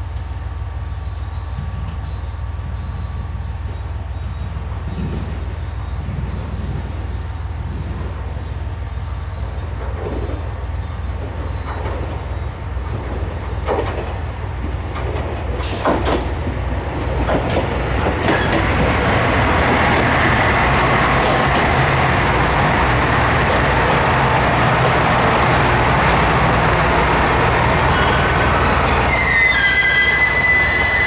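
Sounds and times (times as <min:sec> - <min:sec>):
diesel train low drone: 0:00.0 - 0:31.0
train wheels clicking over rail joints: 0:09.8 - 0:31.0.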